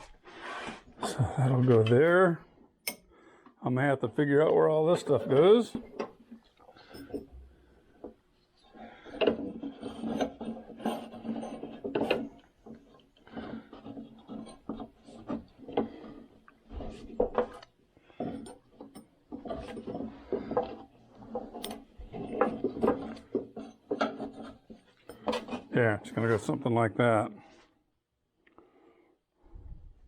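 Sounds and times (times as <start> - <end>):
metal parts scraping: 8.7 - 26.5.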